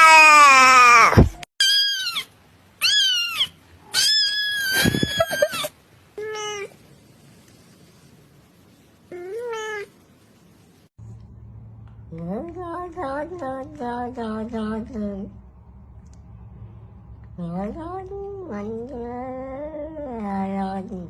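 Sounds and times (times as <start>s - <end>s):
cat meowing: 1.6s - 6.8s, 9.1s - 10.0s.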